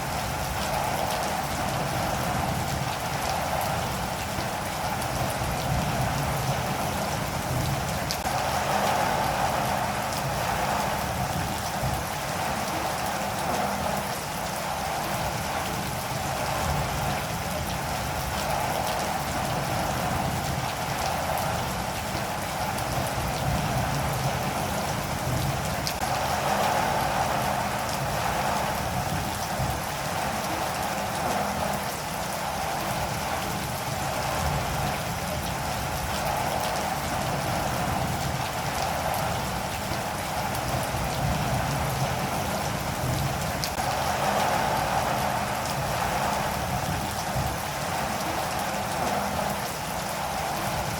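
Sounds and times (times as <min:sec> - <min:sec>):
steady rainfall: 0:00.0 - 0:50.9.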